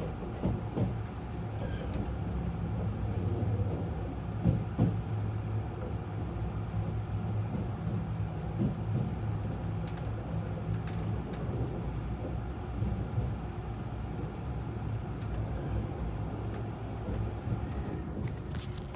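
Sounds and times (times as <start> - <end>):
train interior rumble: 0.0 - 18.9.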